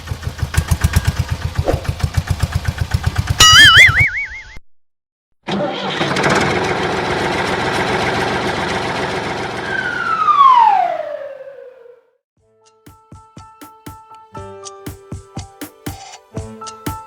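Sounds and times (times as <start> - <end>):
vehicle engine starting and running: 0.0 - 3.5, 5.4 - 12.0.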